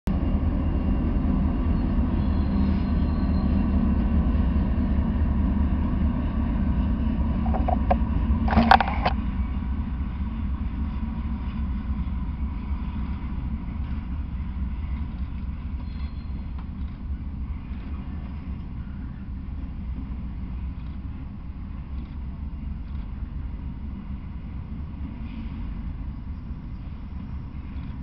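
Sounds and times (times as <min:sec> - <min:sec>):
freight train passing: 0:00.1 - 0:28.0.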